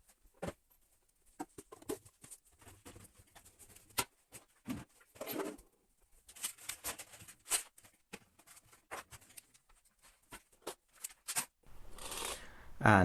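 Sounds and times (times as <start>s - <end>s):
household items knocking and clattering: 1.3s - 5.6s.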